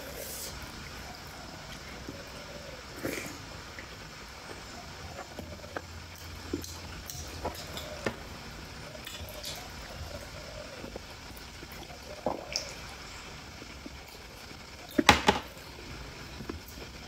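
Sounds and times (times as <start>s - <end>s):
chewing dumpling: 3.0s - 15.0s.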